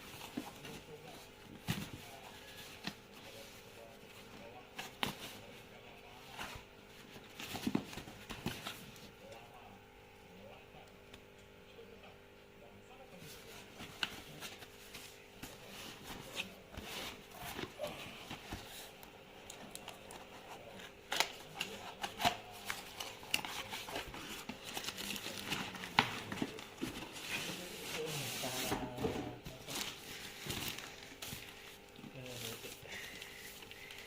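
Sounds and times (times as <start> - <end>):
cardboard and plastic crinkling: 19.6 - 34.0.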